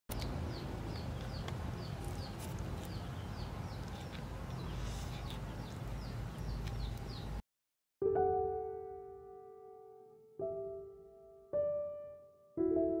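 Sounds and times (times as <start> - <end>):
small birds chirping: 0.1 - 7.4.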